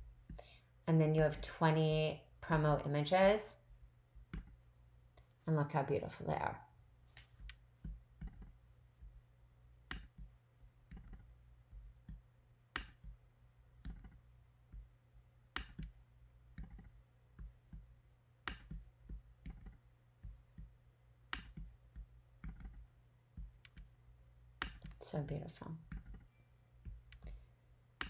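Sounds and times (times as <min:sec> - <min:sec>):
low steady hum: 0:00.0 - 0:28.0
computer mouse clicking: 0:10.9 - 0:11.3, 0:13.8 - 0:14.8, 0:15.5 - 0:17.8, 0:18.5 - 0:20.7, 0:21.3 - 0:23.9, 0:24.6 - 0:25.0.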